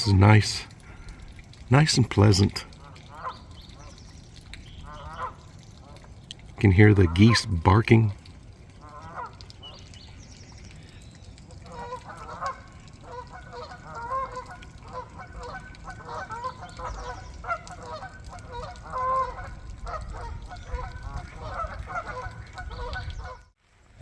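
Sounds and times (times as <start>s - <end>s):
geese honking: 2.2s - 4.0s, 4.8s - 6.1s, 8.8s - 9.4s, 11.6s - 23.5s.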